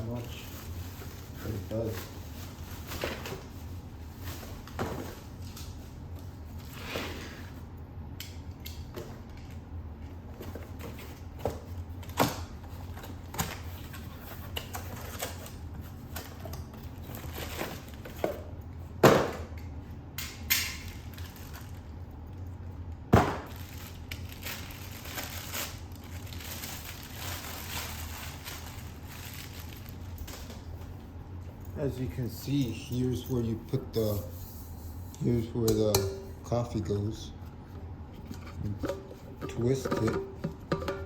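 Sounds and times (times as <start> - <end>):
packaging rustling: 23.5 - 30.9
knocks and thumps of handling: 38.2 - 41.0.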